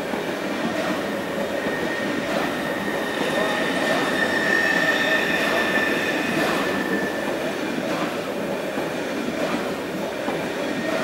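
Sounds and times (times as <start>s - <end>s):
train wheels rumbling on rails: 0.0s - 11.0s
high squeal: 1.5s - 7.3s.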